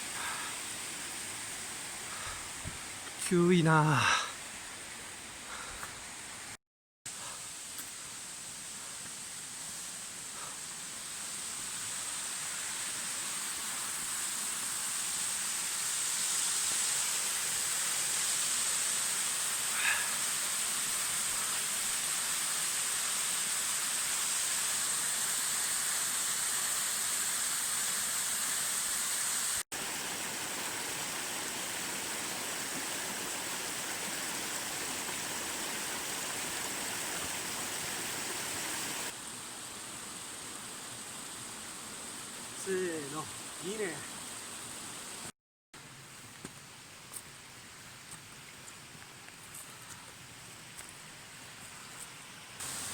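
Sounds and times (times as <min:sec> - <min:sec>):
stream and waterfalls rushing: 0:00.0 - 0:52.9.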